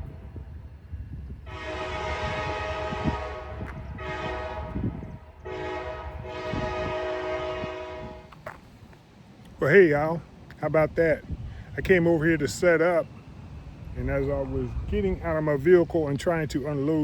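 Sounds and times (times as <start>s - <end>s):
train rumble: 0.0s - 17.0s
locomotive air horn blasts: 1.4s - 8.4s.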